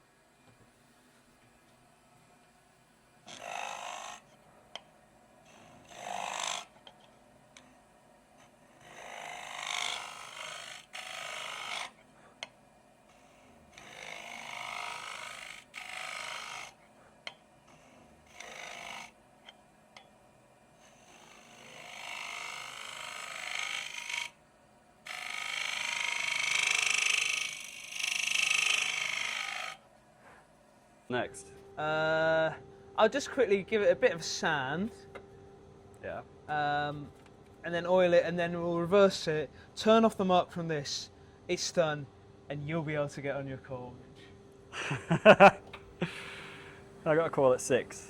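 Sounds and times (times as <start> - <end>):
lathe tool cutting wood: 3.3 - 4.2, 5.5 - 6.7, 8.7 - 12.0, 13.1 - 16.8, 17.7 - 19.2, 20.8 - 24.4, 25.0 - 29.8.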